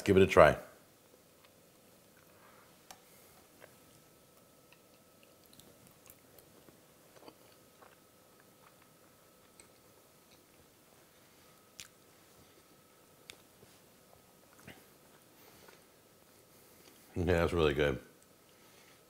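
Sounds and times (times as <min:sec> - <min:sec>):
faint steady hum: 0:00.0 - 0:19.0
soft food chewing: 0:01.1 - 0:17.1.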